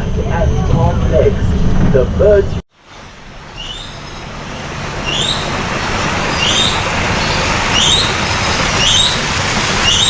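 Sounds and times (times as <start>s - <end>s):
steady rushing noise: 0.0s - 10.0s
bird rising chirp: 3.4s - 10.0s.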